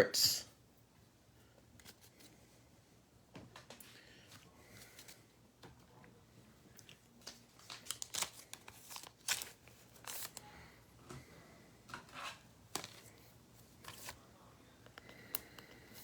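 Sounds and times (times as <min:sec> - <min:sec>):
cards and plastic packaging rustling: 0:06.8 - 0:10.5, 0:11.9 - 0:16.0.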